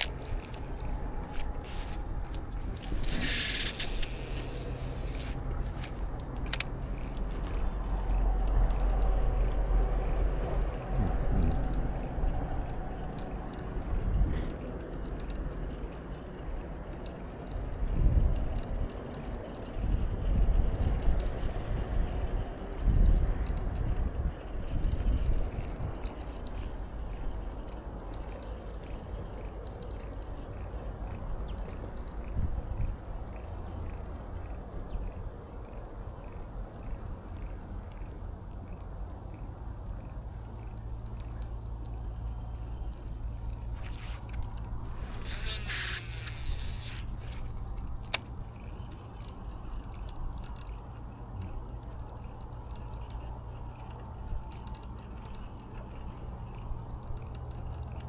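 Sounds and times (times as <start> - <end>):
clicks: 0.0 - 10.2
wind buffeting microphone: 0.0 - 54.5.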